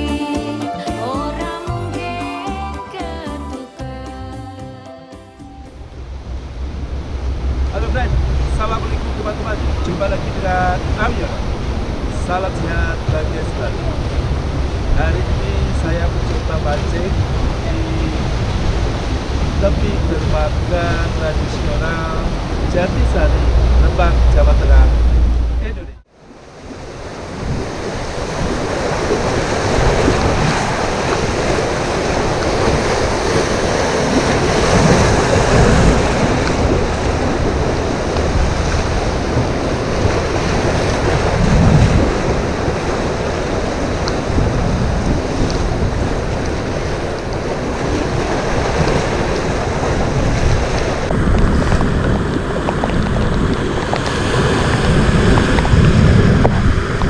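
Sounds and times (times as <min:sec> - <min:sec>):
waves breaking on shore: 0:06.6 - 0:25.0, 0:26.1 - 0:57.0
wind buffeting microphone: 0:26.6 - 0:57.0.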